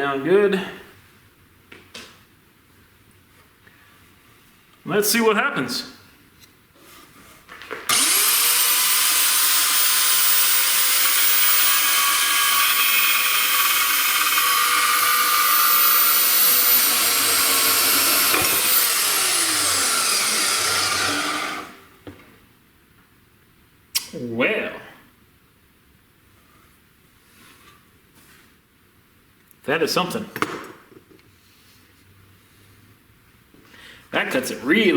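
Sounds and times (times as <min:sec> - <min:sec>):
band saw motor whining: 0:07.9 - 0:21.8.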